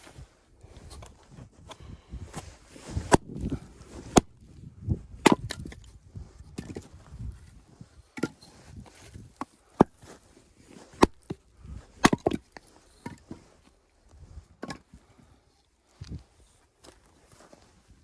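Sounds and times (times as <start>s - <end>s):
handling of wood: 0.0s - 4.6s, 5.2s - 17.9s
axe chopping firewood: 2.9s - 4.5s, 5.2s - 5.9s, 6.5s - 6.9s, 8.2s - 8.5s, 9.1s - 10.2s, 10.9s - 13.4s.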